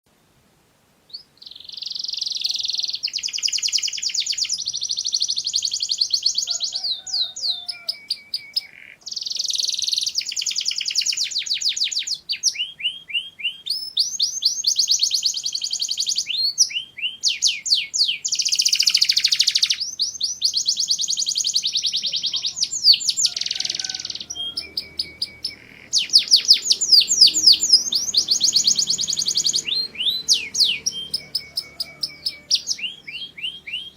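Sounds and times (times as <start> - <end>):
canary singing trills: 1.1 - 33.9.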